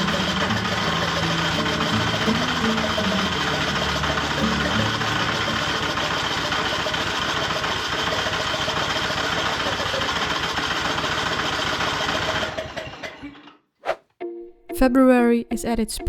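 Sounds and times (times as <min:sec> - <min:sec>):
engine running steadily: 0:00.0 - 0:12.7.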